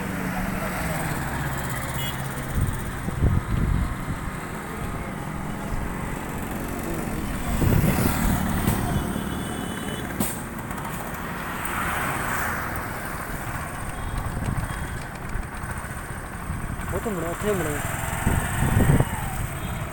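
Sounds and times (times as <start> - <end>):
road traffic noise: 0.0 - 19.9
vehicle engine running: 13.1 - 19.9.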